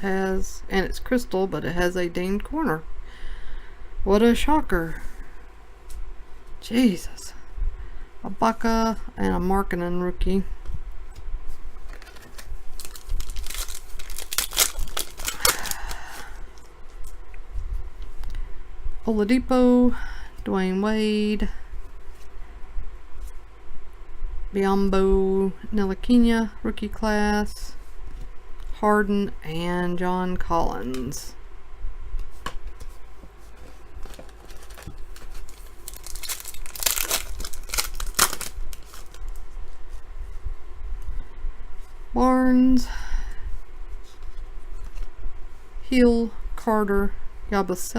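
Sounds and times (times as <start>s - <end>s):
cards rustling: 11.8s - 16.7s, 32.8s - 39.4s
wrapper tearing and crinkling: 11.9s - 16.2s, 34.0s - 39.4s.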